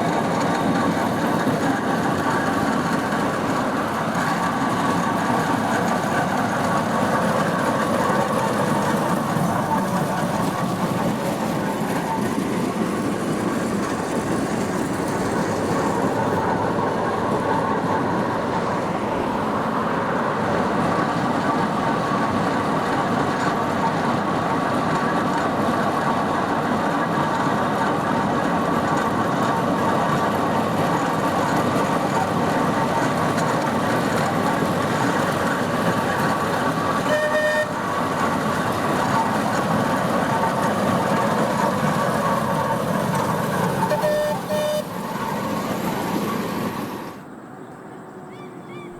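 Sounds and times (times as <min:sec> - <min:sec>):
steam engine running: 0:00.0 - 0:47.3
whistle toot: 0:37.0 - 0:37.8, 0:43.9 - 0:44.9.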